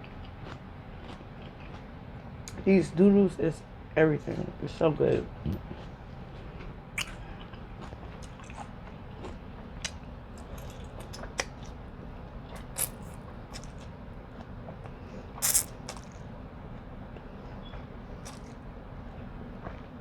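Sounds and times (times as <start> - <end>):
person chewing: 0.1 - 1.9, 5.7 - 11.8, 12.5 - 14.0, 15.4 - 16.3, 18.2 - 18.7.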